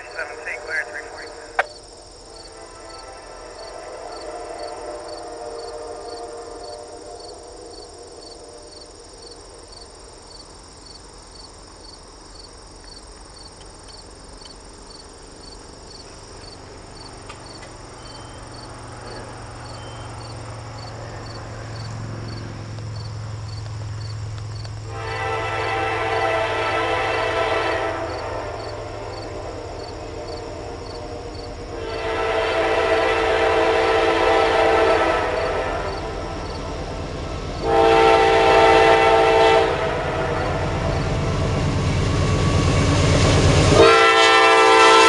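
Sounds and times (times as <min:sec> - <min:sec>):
crickets chirping: 0:00.0 - 0:45.0
locomotive engine hum: 0:00.0 - 0:45.0
train horn: 0:02.3 - 0:09.1, 0:24.9 - 0:45.0.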